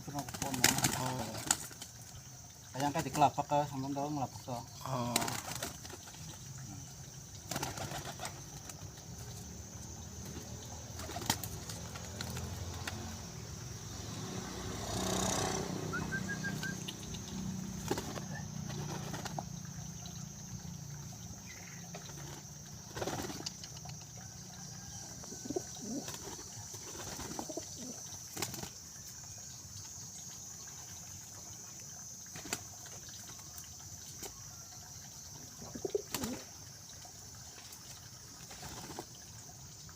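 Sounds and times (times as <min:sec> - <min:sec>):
wings flapping: 0:00.1 - 0:02.0, 0:05.0 - 0:06.5, 0:07.4 - 0:09.1, 0:10.2 - 0:13.2, 0:14.9 - 0:19.6, 0:21.9 - 0:24.0, 0:25.8 - 0:28.8, 0:36.0 - 0:36.4
pigeons cooing: 0:24.8 - 0:28.7, 0:35.6 - 0:36.5.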